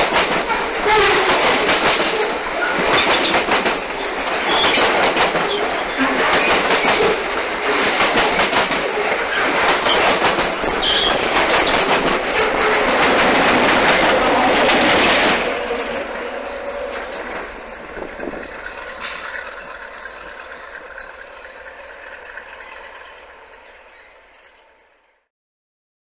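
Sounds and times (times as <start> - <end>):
train wheels clattering: 0.0 - 24.9
high-pitched wheel squeals: 9.2 - 11.8.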